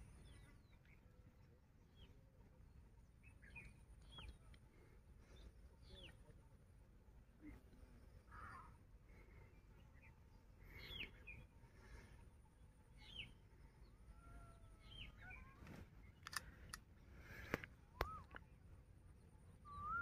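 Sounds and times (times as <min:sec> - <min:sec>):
faint bird chirps: 0:00.0 - 0:06.6, 0:07.3 - 0:20.0
light clicks: 0:16.2 - 0:18.5.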